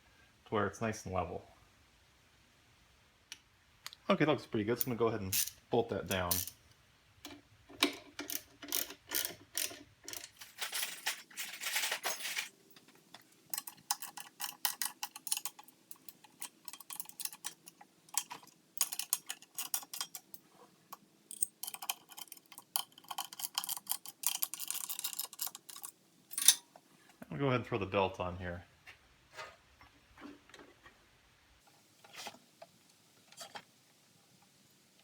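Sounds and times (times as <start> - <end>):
ratchet wrench clicking: 5.3 - 6.6, 8.2 - 10.3.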